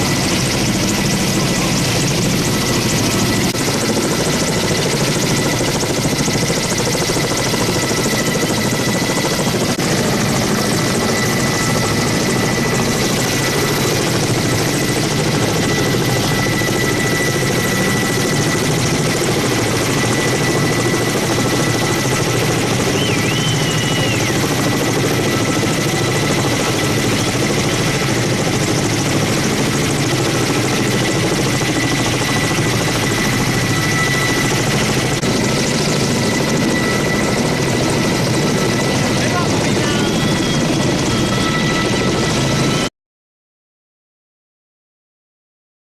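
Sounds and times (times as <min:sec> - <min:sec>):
helicopter engine and rotor: 0:00.0 - 0:42.9.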